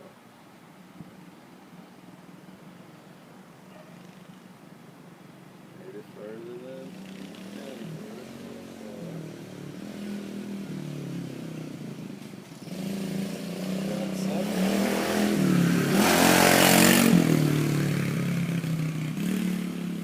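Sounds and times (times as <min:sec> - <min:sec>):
dirt bike engine: 0:05.8 - 0:20.0.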